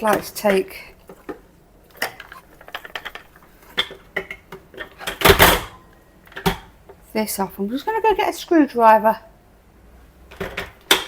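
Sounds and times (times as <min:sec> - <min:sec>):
plastic parts clicking and knocking: 0:00.0 - 0:07.0, 0:10.3 - 0:11.0
plastic parts clattering: 0:00.1 - 0:06.7.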